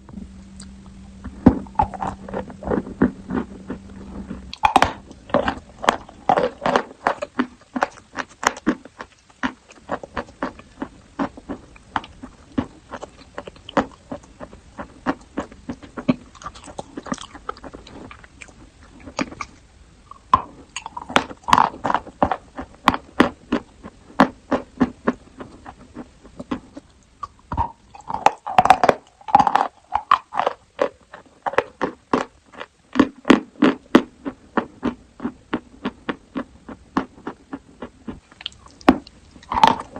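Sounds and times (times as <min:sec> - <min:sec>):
crunching and chewing chalk: 0:00.6 - 0:39.9.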